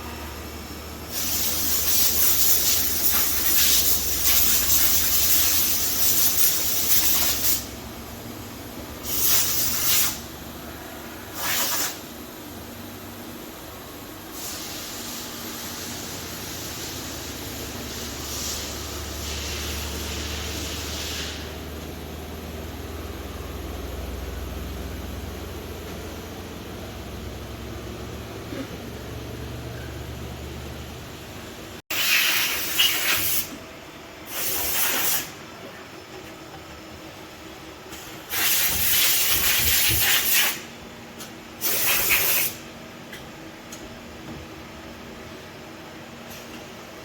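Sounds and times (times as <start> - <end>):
machine low hum: 0.0 - 1.1, 21.6 - 31.8
hissing air jets: 1.0 - 7.7, 14.3 - 21.6, 34.3 - 35.4.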